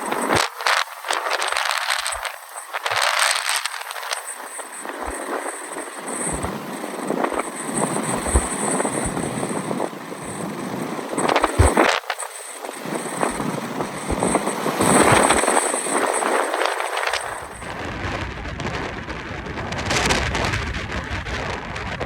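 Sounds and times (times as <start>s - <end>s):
strong wind gusting: 4.7s - 11.9s, 12.7s - 22.0s
wind buffeting microphone: 4.8s - 12.0s, 12.7s - 22.0s.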